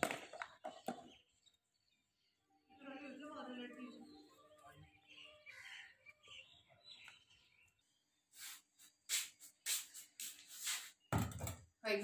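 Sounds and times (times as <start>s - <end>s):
faint bird chirps: 0.2s - 11.2s
short hissing rustles: 8.3s - 11.1s.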